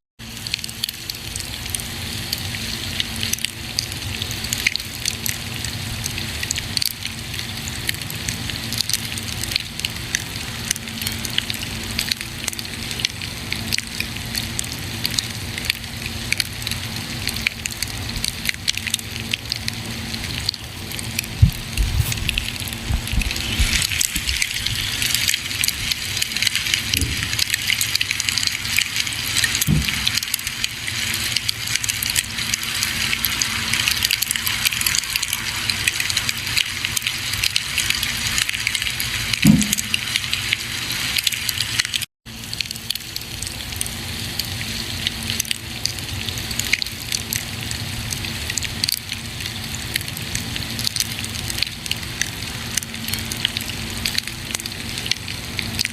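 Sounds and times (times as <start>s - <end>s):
soft deep thumps: 21.4s - 24.3s.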